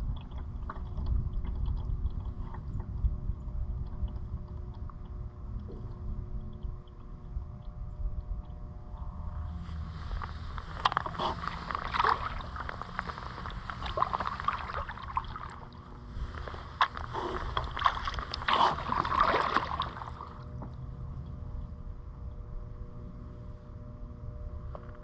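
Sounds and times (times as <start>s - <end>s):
water sloshing against boat: 0.0s - 21.1s
paddle strokes splashing: 9.8s - 20.4s.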